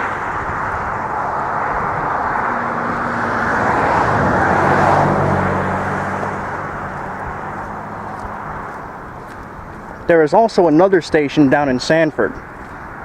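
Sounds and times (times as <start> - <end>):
vehicle driving past: 0.0 - 10.2.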